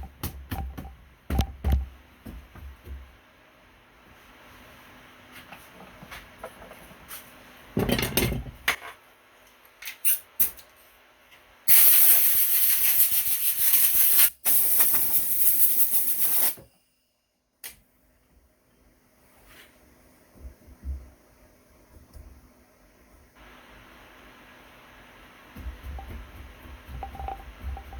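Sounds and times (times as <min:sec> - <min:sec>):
loud hissing spray: 0:11.7 - 0:16.6.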